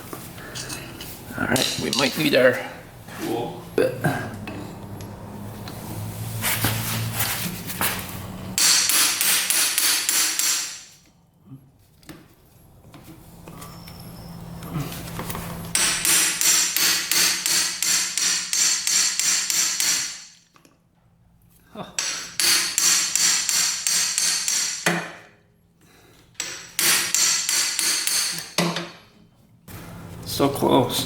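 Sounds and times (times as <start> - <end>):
hammer striking metal: 8.6 - 11.0, 15.7 - 20.4, 22.0 - 25.3, 26.4 - 29.0.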